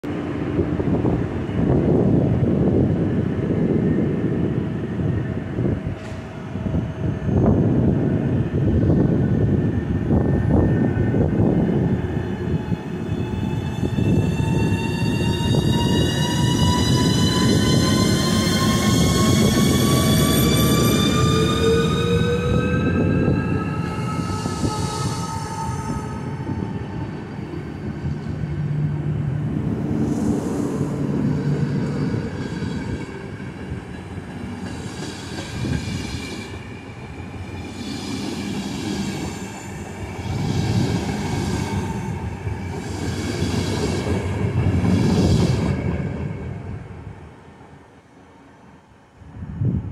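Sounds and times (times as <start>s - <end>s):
train wheels rumbling on rails: 0.0s - 47.2s
high wheel squeal: 13.1s - 28.2s.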